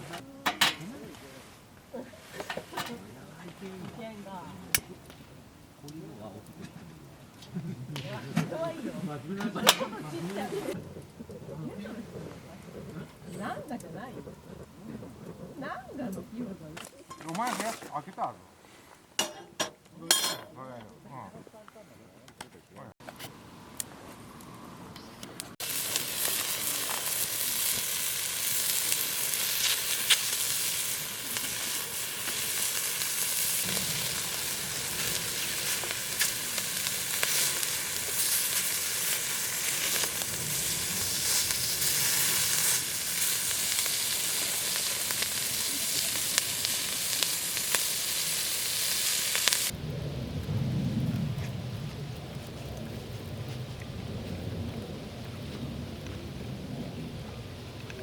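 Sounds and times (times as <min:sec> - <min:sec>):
food sizzling on hot metal: 0:25.6 - 0:49.8.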